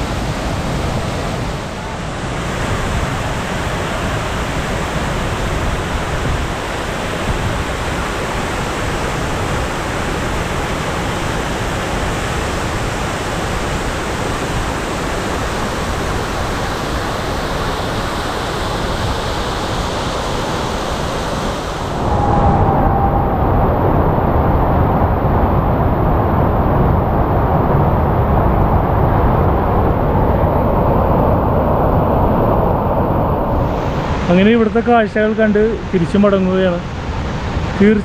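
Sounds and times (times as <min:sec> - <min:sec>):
waterfall rushing: 0:12.6 - 0:24.3.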